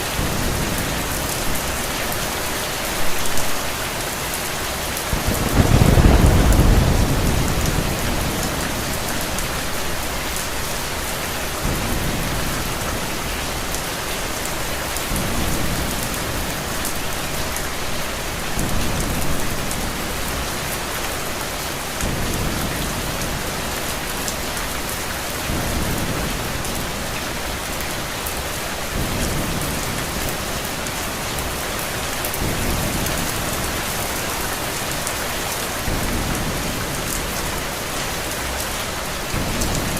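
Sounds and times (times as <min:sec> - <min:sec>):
heavy rainfall: 0:00.0 - 0:39.9
thunder rumbling: 0:00.1 - 0:17.5.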